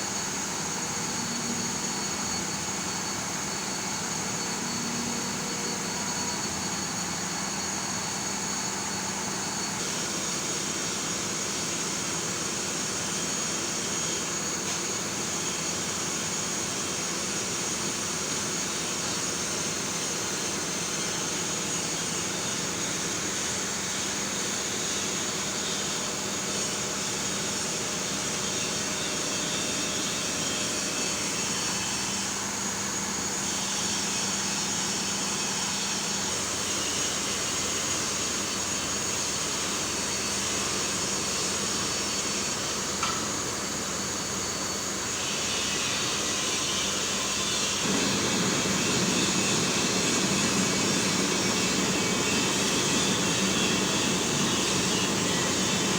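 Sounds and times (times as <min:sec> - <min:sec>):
constant high whine: 0:46.0 - 0:55.9
heavy vehicle engine and road noise: 0:47.8 - 0:55.9.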